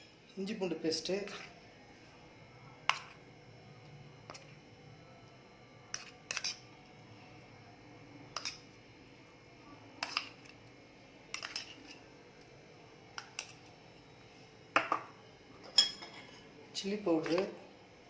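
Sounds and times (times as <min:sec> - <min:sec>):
spoon clinking against bowl: 0:15.6 - 0:16.4.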